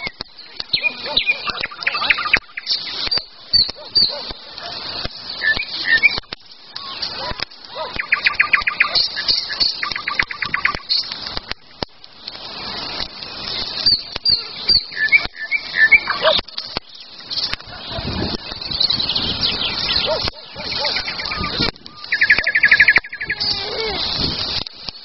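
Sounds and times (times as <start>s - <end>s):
campfire crackling: 0.0s - 25.0s
songbirds chirping and singing: 0.0s - 25.0s
bird trills: 18.6s - 23.6s.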